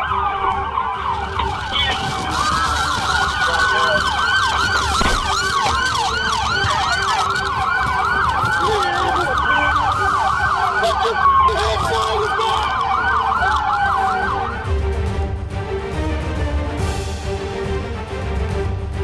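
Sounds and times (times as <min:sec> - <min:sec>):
police sirens yelping: 0:00.0 - 0:14.9.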